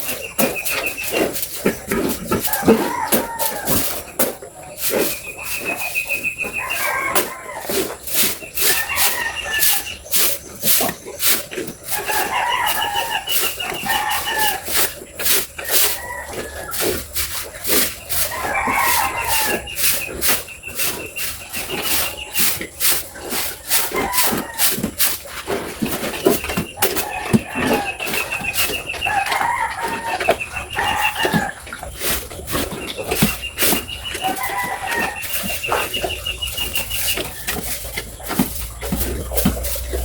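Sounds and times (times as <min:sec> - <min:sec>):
pigs chomping feed: 0:00.0 - 0:40.0.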